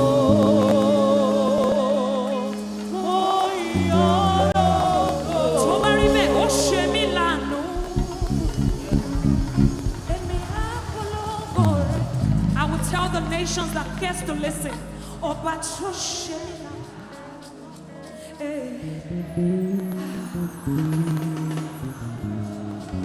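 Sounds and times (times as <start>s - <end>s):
keyboard and bass chords: 0.0s - 10.7s, 11.6s - 16.2s
percussion: 0.0s - 23.0s
singer holding long notes: 0.0s - 23.0s.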